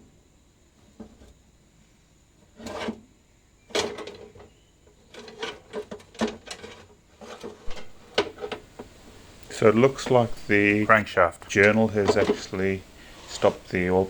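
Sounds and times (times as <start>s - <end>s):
metal knocks and scrapes: 5.1s - 8.6s
metal clunks: 7.7s - 9.0s, 11.5s - 12.6s.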